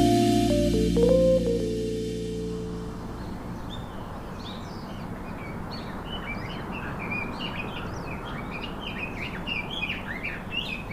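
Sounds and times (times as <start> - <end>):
small birds chirping: 3.0 - 10.9.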